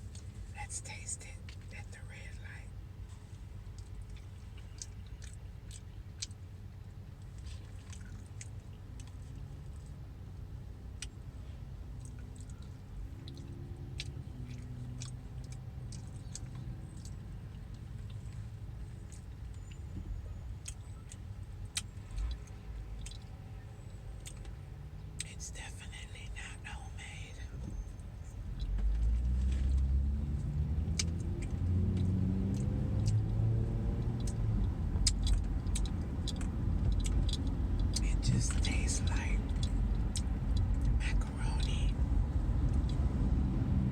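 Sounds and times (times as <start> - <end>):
low steady car cabin rumble: 0.0 - 43.9
car engine accelerating: 27.6 - 43.9
wet chewing mouth smacks: 28.6 - 42.0.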